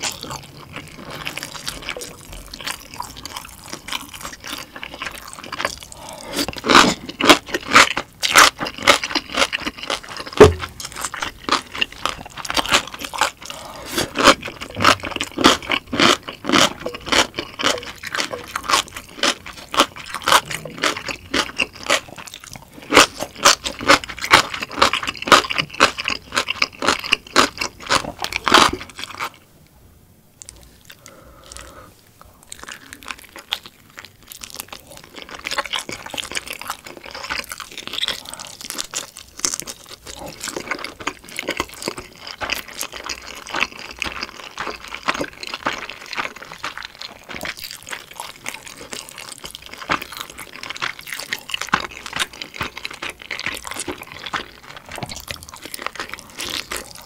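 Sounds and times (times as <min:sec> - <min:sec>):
person chewing with wet clicks: 0:00.0 - 0:29.4, 0:30.4 - 0:57.0.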